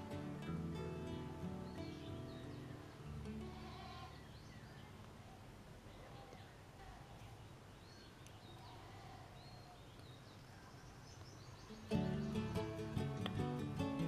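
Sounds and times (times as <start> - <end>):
low steady hum: 0.0 - 14.0
faint bird chirps: 0.8 - 13.2.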